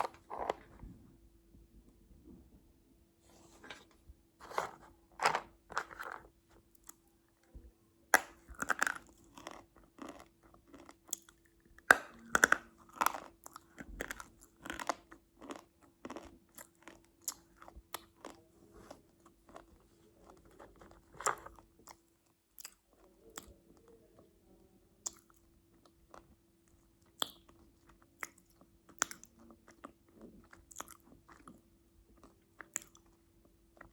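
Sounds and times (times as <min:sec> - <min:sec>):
crunchy food being chewed: 0:08.2 - 0:23.7, 0:25.0 - 0:33.9.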